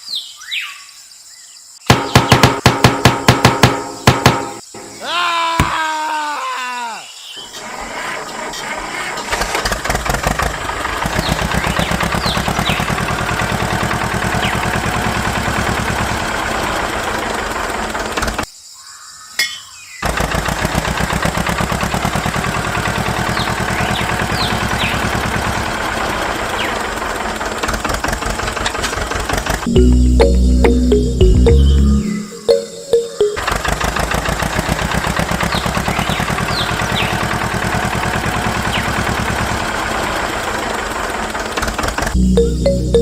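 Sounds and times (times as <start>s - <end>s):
birds chirping: 0.0s - 7.7s, 11.0s - 13.4s, 14.2s - 14.9s, 18.5s - 20.2s, 23.0s - 25.4s, 29.7s - 33.9s, 35.2s - 37.6s, 38.4s - 39.2s, 42.1s - 43.0s.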